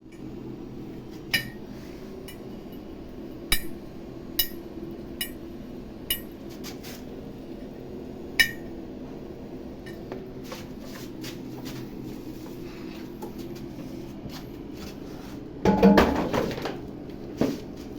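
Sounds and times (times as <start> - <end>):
low electrical hum: 0.0 - 17.9.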